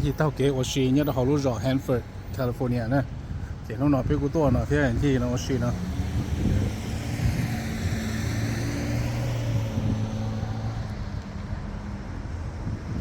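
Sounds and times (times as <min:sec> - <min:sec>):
vehicle passing rush: 0:01.0 - 0:13.0
vehicle engine hum: 0:04.3 - 0:13.0.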